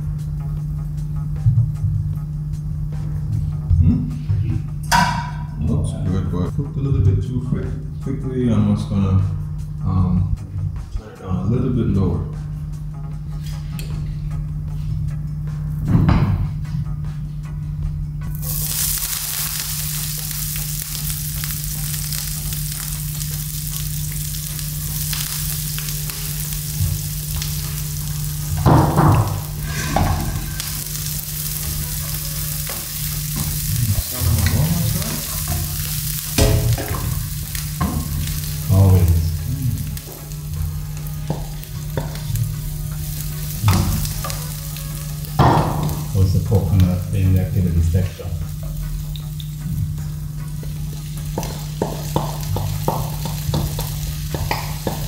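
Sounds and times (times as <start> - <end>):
dumpling sizzling in hot oil: 18.3 - 46.2, 48.6 - 55.0.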